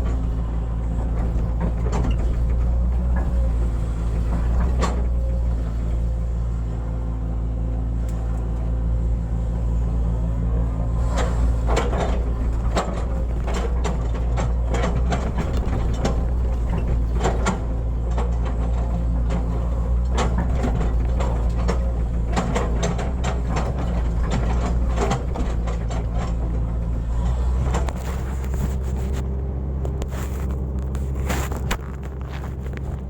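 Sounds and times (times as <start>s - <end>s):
excavator diesel engine running: 0.0s - 33.0s
metal clanks and knocks: 11.0s - 29.3s.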